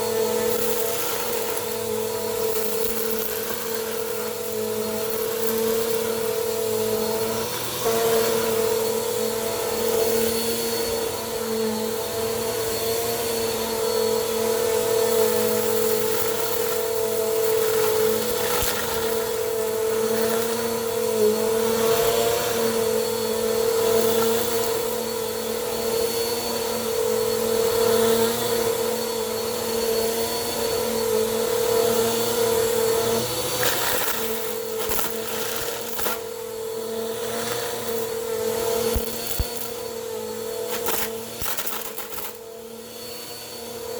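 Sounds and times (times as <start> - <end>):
vacuum cleaner running: 0.0 - 43.9
debris crackling in vacuum: 16.0 - 20.3, 33.5 - 36.5, 40.7 - 42.4.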